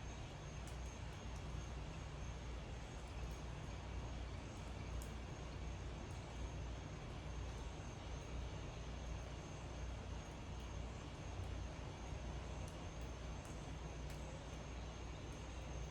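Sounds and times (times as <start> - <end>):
faint ticks: 0.6 - 1.6.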